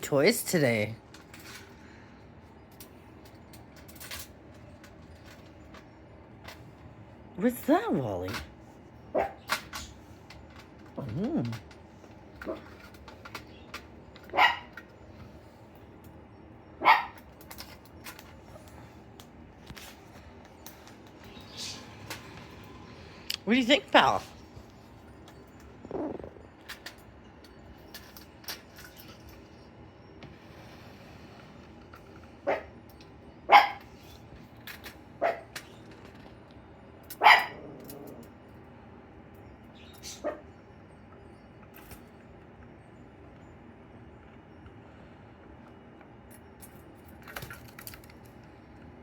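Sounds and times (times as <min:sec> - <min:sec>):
dog barking: 0:09.1 - 0:09.5, 0:14.3 - 0:14.7, 0:16.8 - 0:17.2, 0:32.4 - 0:32.7, 0:33.5 - 0:33.8, 0:35.2 - 0:35.5, 0:37.2 - 0:37.8, 0:40.2 - 0:40.4.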